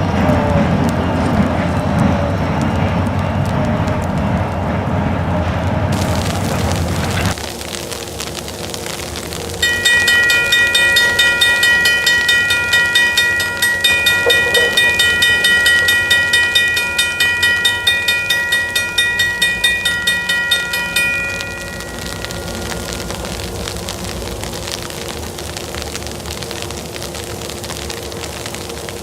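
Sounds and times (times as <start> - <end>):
train drone: 0.0 - 7.4, 8.7 - 29.0
crossing warning bell ringing: 9.6 - 24.8.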